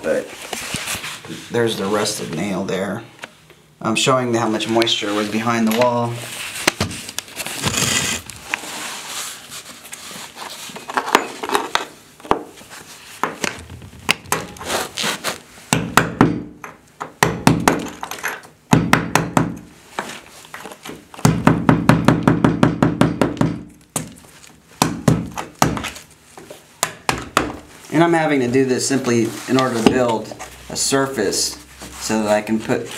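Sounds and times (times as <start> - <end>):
tool knocking on a wall: 21.2 - 23.6.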